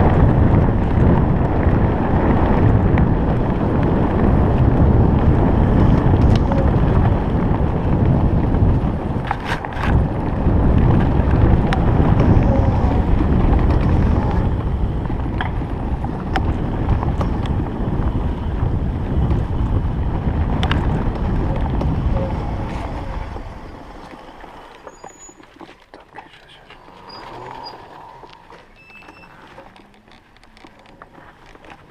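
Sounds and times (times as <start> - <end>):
bike knocks and rattles: 0.0 - 25.5
wind buffeting microphone: 0.0 - 25.6.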